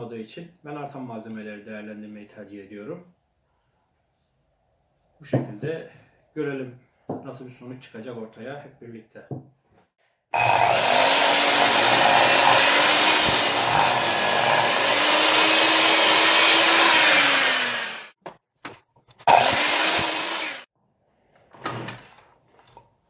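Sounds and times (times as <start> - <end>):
power tool cutting wood: 10.4 - 18.2, 19.3 - 20.7.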